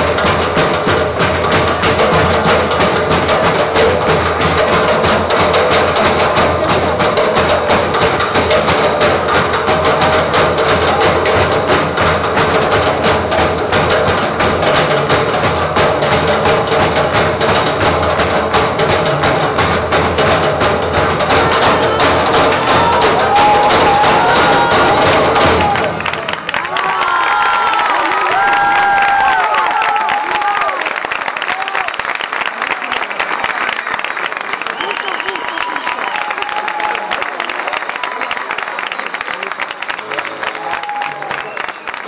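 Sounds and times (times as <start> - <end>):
percussion on recycled objects: 0.0 - 30.6
steady held tone: 21.2 - 25.4.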